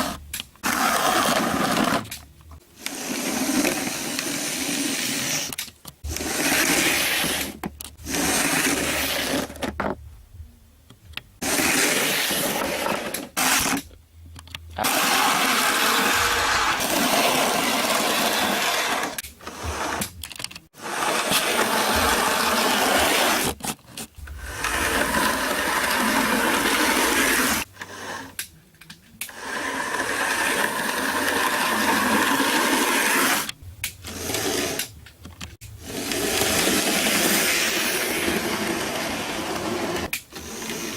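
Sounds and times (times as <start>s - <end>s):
model train motor whirring: 29.3s - 33.5s.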